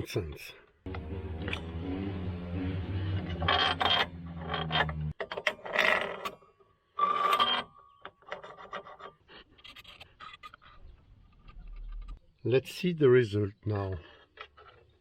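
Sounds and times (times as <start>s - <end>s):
low steady hum: 0.9s - 5.1s
metal parts clicking and scraping: 3.2s - 12.2s.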